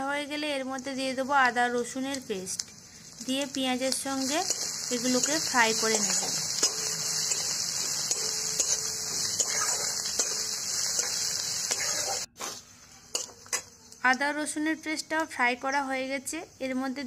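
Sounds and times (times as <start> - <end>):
onions sizzling in oil: 0.0 - 14.7
spatula scraping pan: 4.1 - 13.8.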